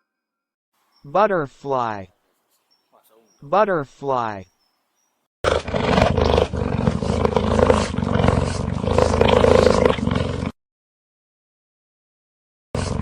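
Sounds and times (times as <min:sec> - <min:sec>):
large animal roaring: 0:05.5 - 0:10.5.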